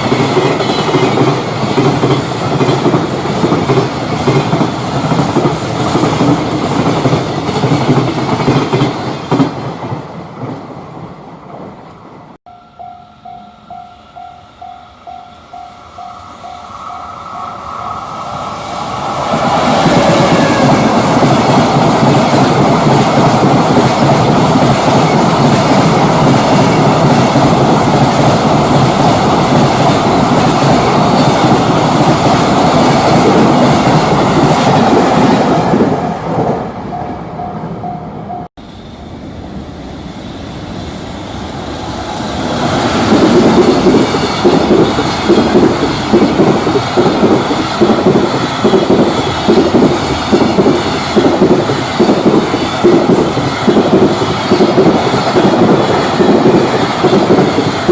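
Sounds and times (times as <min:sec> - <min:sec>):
train wheels rumbling on rails: 0:00.0 - 0:12.4, 0:15.1 - 0:57.9
level-crossing bell pinging: 0:12.5 - 0:18.2, 0:36.0 - 0:38.5.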